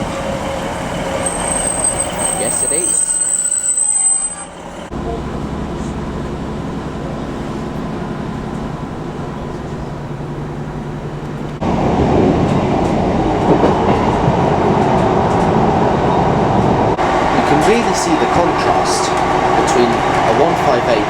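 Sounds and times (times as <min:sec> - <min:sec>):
rough train running rumble: 0:00.0 - 0:21.0
train engine hum: 0:00.0 - 0:21.0.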